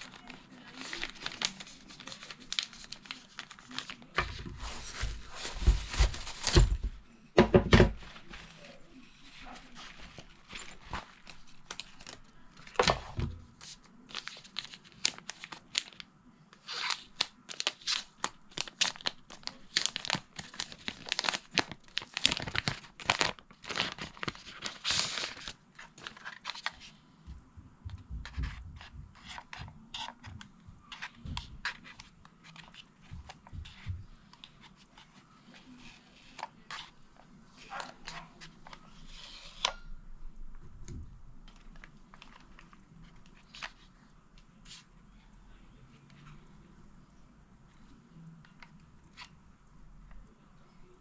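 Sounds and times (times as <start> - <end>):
wrapping tearing and crinkling: 0.0 - 6.8, 8.0 - 13.0, 13.6 - 16.0, 16.6 - 26.9, 41.5 - 43.9.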